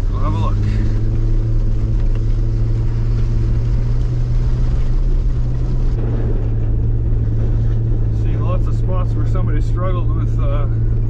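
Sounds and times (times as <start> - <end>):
car engine droning while driving: 0.0 - 11.0.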